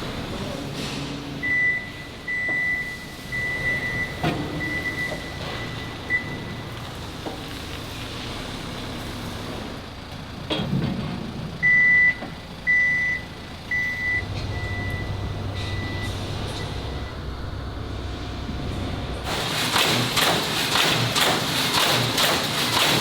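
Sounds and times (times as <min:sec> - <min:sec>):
machine warning beeper: 0:01.4 - 0:06.6, 0:11.6 - 0:19.3
low engine rumble: 0:05.2 - 0:19.7.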